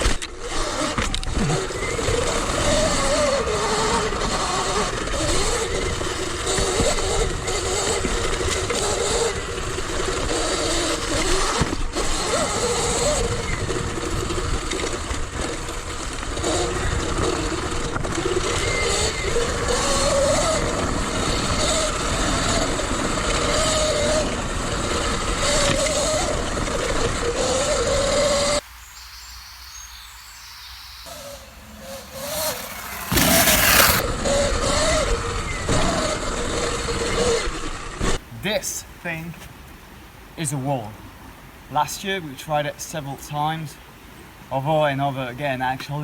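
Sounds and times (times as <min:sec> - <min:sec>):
electric motor whine: 0:00.0 - 0:28.6, 0:31.1 - 0:38.2
steady rushing noise: 0:31.1 - 0:34.2.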